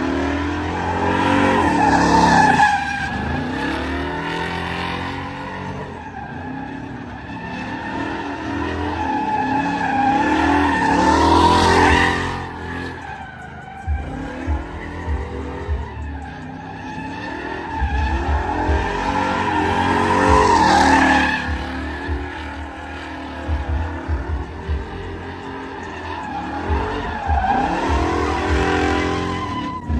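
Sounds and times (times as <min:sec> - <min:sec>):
tires squealing: 0:00.0 - 0:29.9
truck engine revving: 0:00.0 - 0:29.9.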